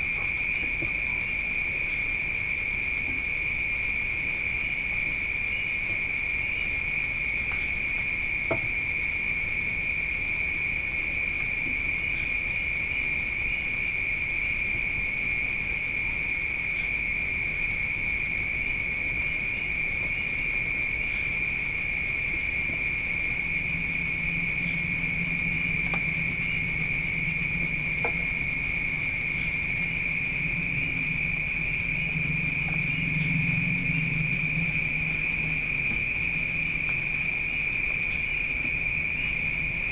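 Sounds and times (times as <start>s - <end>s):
night insects chirping: 0.0s - 39.9s
faint low hum: 18.9s - 39.9s.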